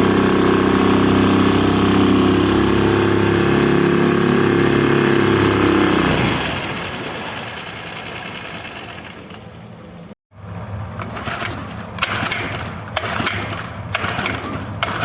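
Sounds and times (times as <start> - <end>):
outboard motor running: 0.0 - 10.1.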